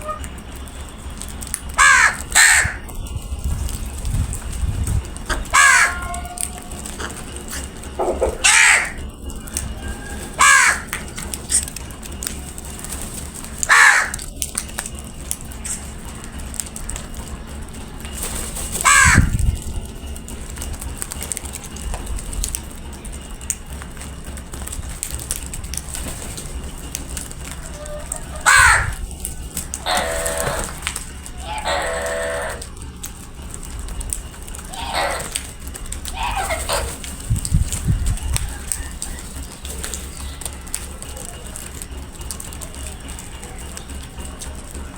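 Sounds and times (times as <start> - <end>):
crows cawing: 0.0 - 0.4, 1.2 - 3.2, 5.1 - 14.5, 15.4 - 20.0, 25.6 - 33.1, 34.4 - 41.9.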